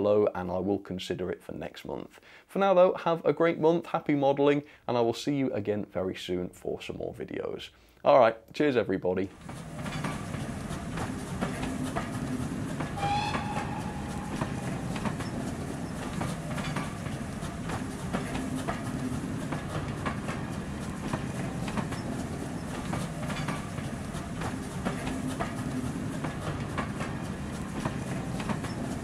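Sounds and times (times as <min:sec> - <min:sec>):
train wheels clickety-clack: 0:09.3 - 0:29.0.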